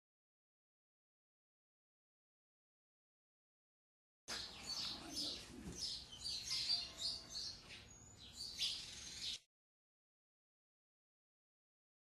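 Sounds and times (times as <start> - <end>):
small birds chirping: 4.3 - 9.4.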